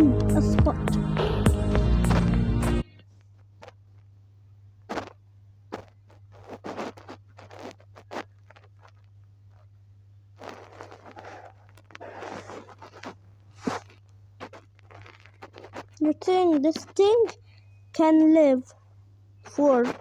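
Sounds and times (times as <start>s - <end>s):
low electrical hum: 0.0s - 20.0s
drawing strokes scratching: 10.4s - 17.2s.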